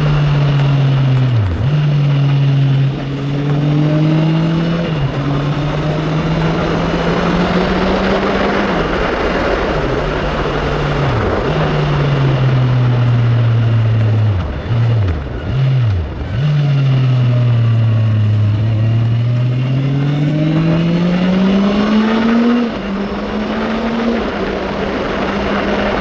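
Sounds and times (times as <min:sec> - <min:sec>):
motorcycle engine accelerating: 0:00.0 - 0:26.0
wind noise: 0:00.0 - 0:26.0.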